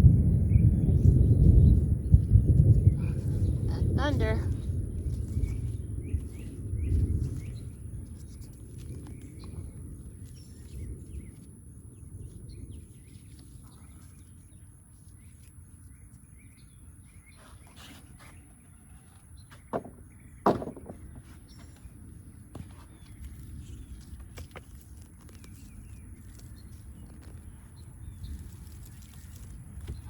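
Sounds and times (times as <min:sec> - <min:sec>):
thunder rumbling: 0:00.0 - 0:07.7
sharp knocks: 0:19.5 - 0:21.2.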